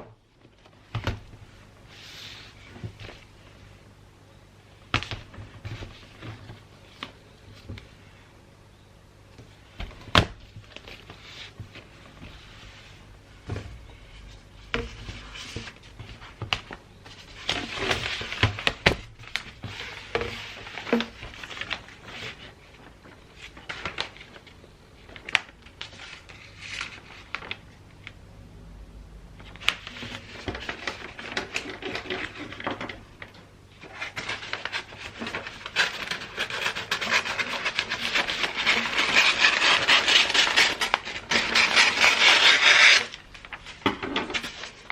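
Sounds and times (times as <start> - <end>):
wrapping paper rustling: 10.4 - 28.2, 29.4 - 44.9.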